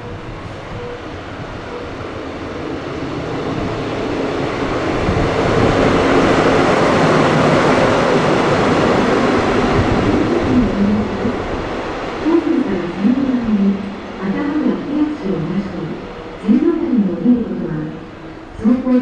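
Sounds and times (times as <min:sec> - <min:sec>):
train wheels rushing on rail: 0:00.0 - 0:19.0.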